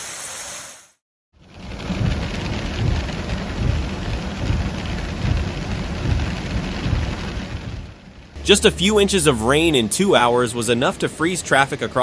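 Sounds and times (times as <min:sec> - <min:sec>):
low rumbling: 0:01.4 - 0:10.5
heavy rain: 0:01.4 - 0:12.0.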